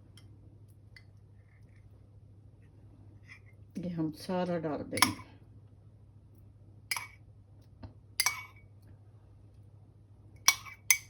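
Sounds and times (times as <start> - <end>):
spoon clinking against a dish: 5.0 - 5.2, 6.9 - 7.2, 8.2 - 8.6, 10.4 - 11.0.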